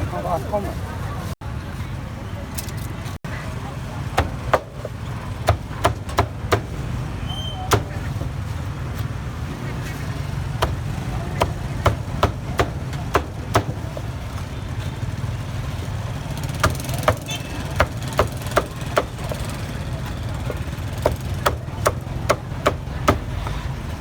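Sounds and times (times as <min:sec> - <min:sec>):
cleaver chopping on wooden block: 0:04.2 - 0:06.8, 0:07.7 - 0:08.4, 0:10.6 - 0:14.2, 0:16.6 - 0:19.5, 0:20.5 - 0:23.6.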